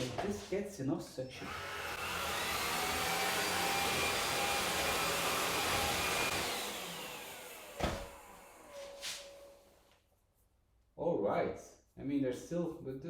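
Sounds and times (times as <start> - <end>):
stick vacuum whining: 1.3 - 9.7.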